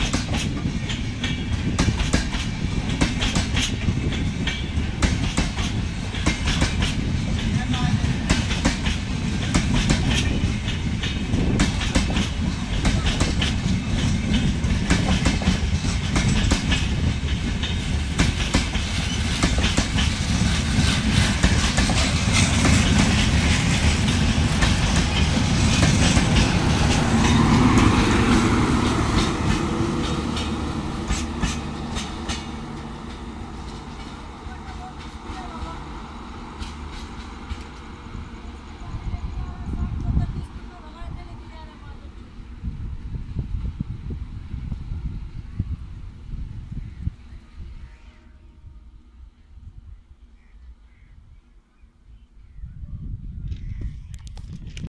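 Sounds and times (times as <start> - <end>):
train wheels clattering on track: 0.0 - 42.1.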